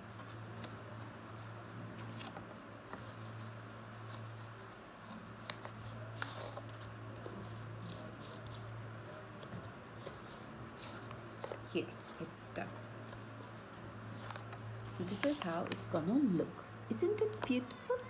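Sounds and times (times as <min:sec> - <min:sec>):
paper rustling and crinkling: 0:00.0 - 0:16.0.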